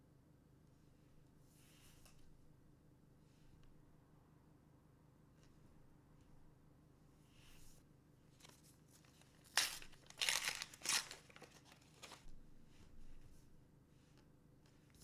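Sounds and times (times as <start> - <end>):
wrapper being torn open: 8.4 - 12.2.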